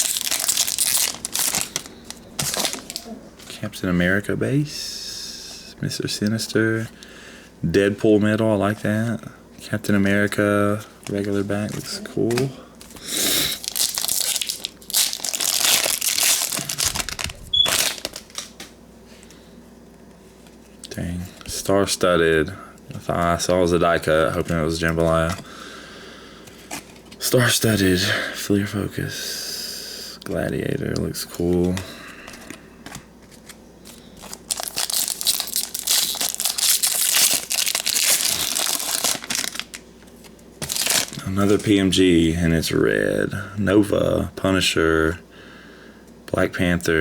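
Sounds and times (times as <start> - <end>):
plastic wrapper crinkling: 0.0 - 3.6, 11.0 - 18.7, 31.4 - 41.8.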